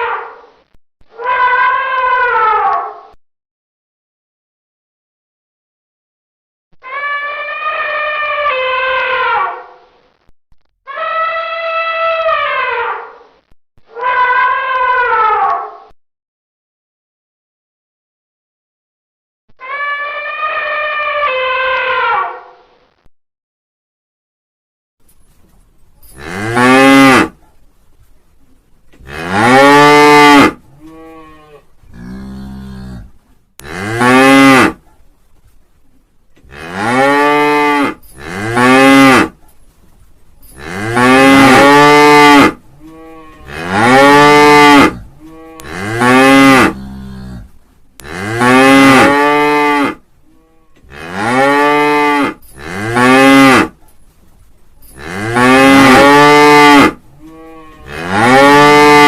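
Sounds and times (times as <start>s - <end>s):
cattle mooing: 29.0s - 34.8s, 40.6s - 53.7s, 55.0s - 59.0s.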